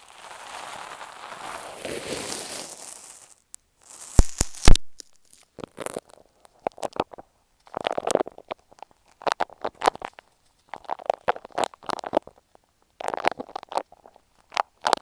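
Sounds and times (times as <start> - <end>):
sand crunching and crackling: 0.0 - 6.0.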